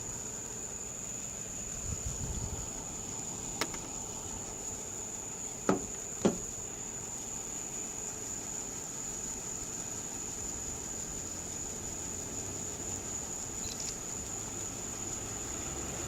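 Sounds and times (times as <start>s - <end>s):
high-pitched insect drone: 0.0s - 16.0s
short knocks: 5.7s - 6.5s.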